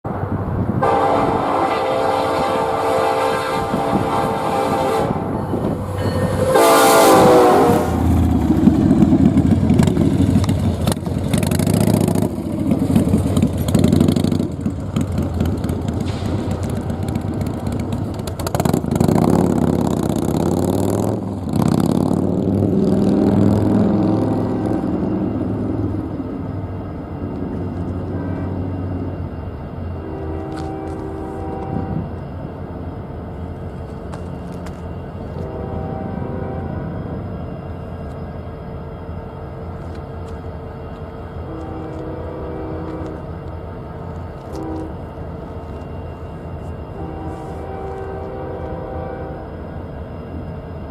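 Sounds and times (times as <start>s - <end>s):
train rumbling past: 0.0s - 50.9s
locomotive horn: 0.8s - 8.2s, 16.1s - 17.7s, 30.0s - 32.2s, 35.3s - 37.0s, 41.4s - 43.3s, 44.4s - 45.2s, 46.6s - 49.7s.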